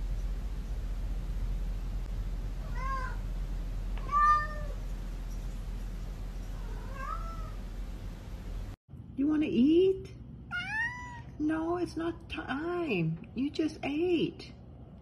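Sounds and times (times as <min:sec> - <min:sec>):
cat meowing: 0:02.6 - 0:03.2, 0:04.0 - 0:04.8, 0:06.6 - 0:07.6, 0:10.5 - 0:11.3.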